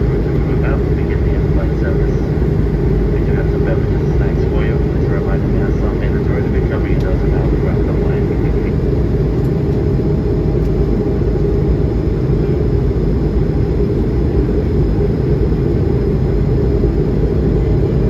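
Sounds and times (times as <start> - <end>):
airplane cabin engine rumble: 0.0 - 18.0.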